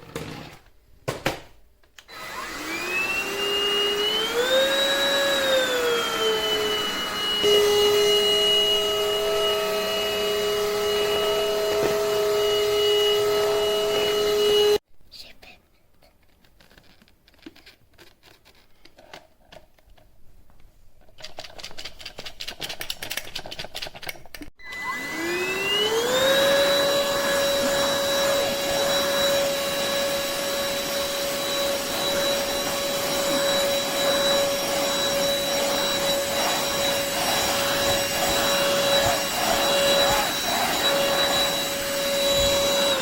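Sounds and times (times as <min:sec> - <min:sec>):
vacuum cleaner motor whining: 0:02.1 - 0:14.8, 0:24.6 - 0:43.0.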